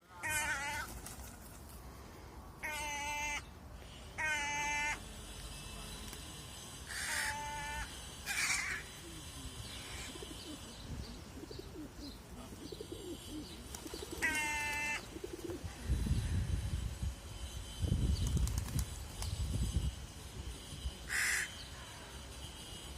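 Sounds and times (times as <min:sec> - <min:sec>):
crow cawing: 0:00.2 - 0:00.9, 0:02.6 - 0:03.5, 0:04.2 - 0:05.0, 0:06.9 - 0:08.9, 0:14.1 - 0:15.1, 0:21.1 - 0:21.6.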